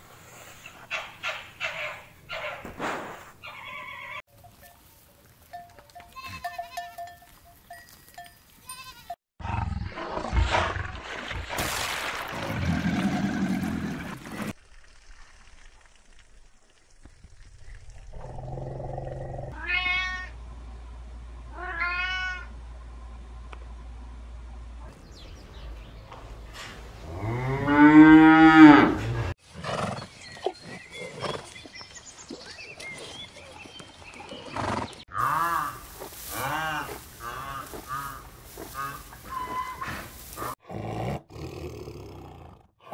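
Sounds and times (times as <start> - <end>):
cow mooing: 27.1 - 29.3.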